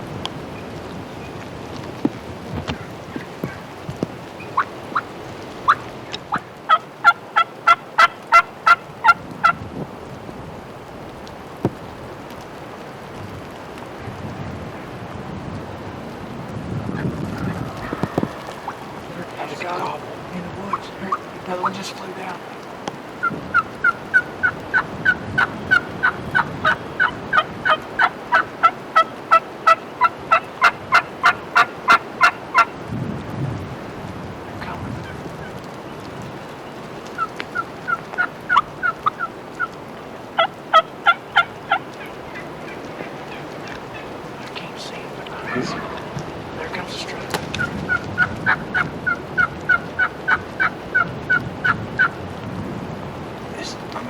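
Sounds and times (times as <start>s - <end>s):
wild turkey yelping: 4.4s - 9.6s, 17.0s - 32.8s, 36.6s - 52.2s.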